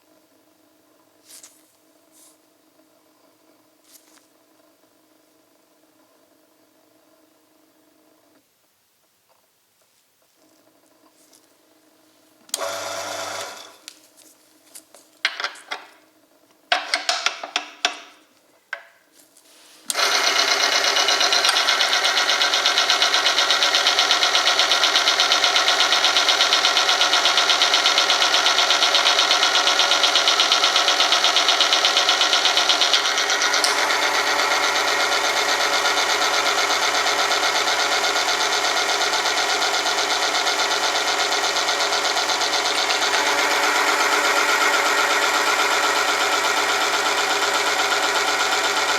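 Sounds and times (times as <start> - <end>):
machine mechanical whirr: 19.8 - 48.9.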